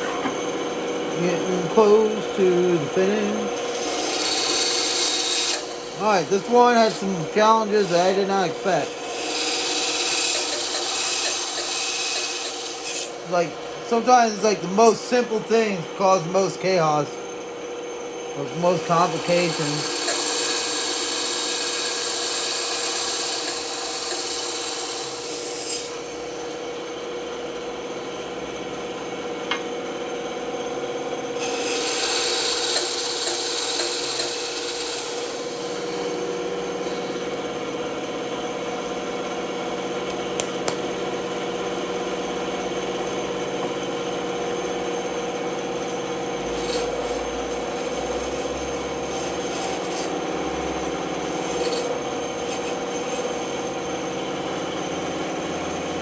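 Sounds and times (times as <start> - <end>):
power tool humming: 0.0 - 56.0
wood rasping against tool: 1.1 - 15.5, 18.5 - 26.1, 31.4 - 37.5, 42.7 - 54.5.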